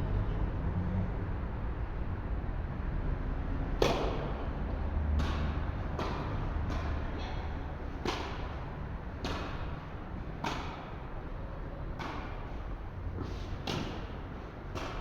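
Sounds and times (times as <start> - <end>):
tennis rackets striking ball: 3.8 - 15.0.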